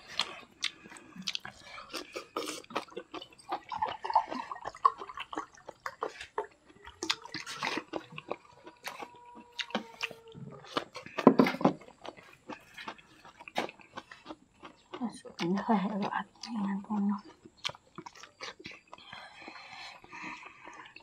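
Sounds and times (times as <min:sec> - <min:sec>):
chewing and mouth clicks: 0:00.0 - 0:21.0.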